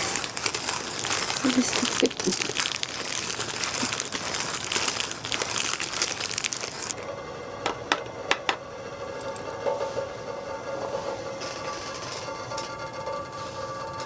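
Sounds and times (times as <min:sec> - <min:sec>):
heavy rain on tent fabric: 0:00.0 - 0:07.0.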